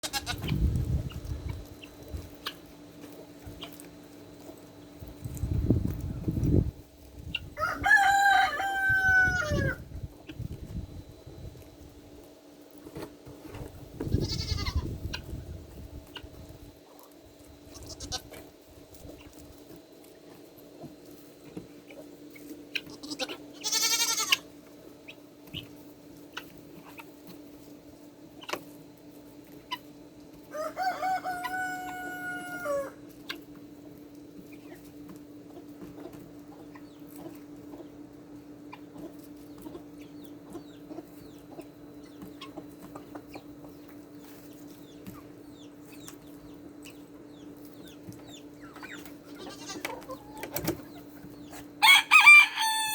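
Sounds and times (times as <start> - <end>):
steady low hum: 0.0 - 51.8
chickens clucking: 0.0 - 52.9
rooster crowing: 7.5 - 9.9, 30.5 - 33.0, 51.8 - 52.9.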